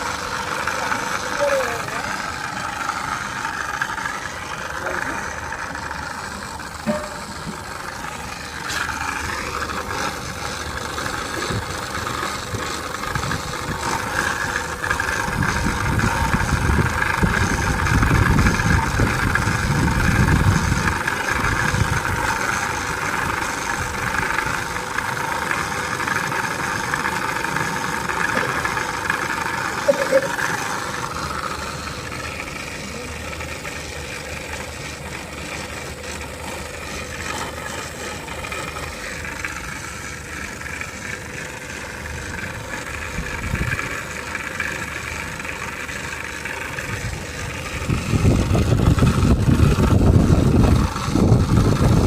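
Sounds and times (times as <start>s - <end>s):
vacuum pump running: 0.0s - 52.0s.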